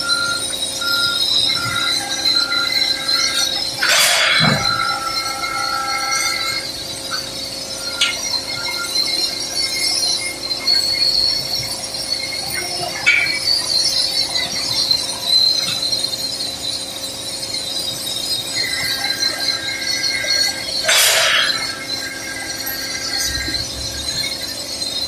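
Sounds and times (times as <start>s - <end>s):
constant hum: 0.0s - 25.0s
sharp metallic clinks: 0.0s - 25.0s.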